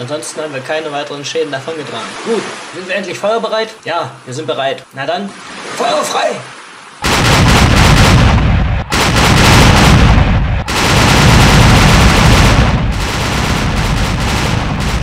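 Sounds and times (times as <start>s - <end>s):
cannons firing barrage: 7.0s - 15.0s.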